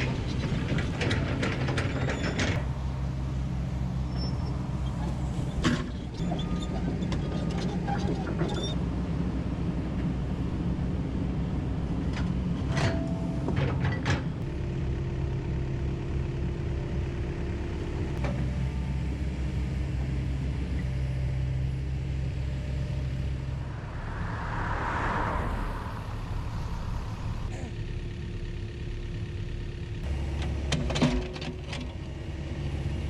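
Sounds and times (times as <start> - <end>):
excavator diesel engine running: 0.0 - 33.0
rushing noise: 23.4 - 27.8.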